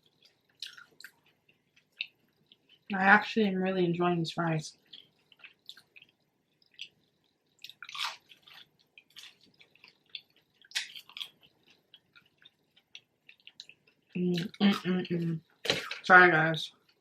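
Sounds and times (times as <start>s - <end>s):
person chewing fries: 0.0s - 2.9s, 4.7s - 15.9s, 16.7s - 17.0s
wet mouth clicks and smacks: 4.9s - 13.8s.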